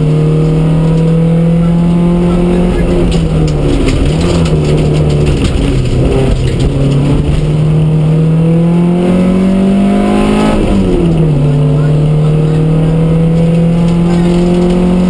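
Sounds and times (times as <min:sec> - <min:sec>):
car engine accelerating: 0:00.0 - 0:15.0
clicks and rattles: 0:03.0 - 0:07.6.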